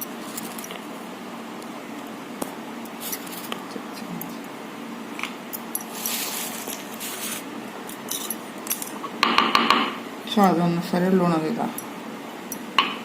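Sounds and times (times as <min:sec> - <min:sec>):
scraping rustle: 0:05.9 - 0:08.3.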